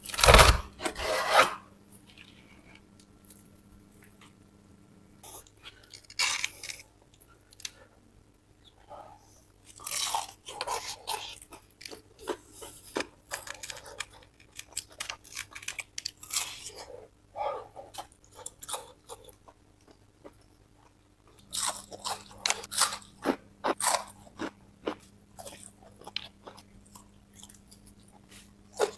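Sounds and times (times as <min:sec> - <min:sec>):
crunching fried chicken: 0:05.2 - 0:07.8, 0:09.6 - 0:16.9, 0:17.9 - 0:28.9.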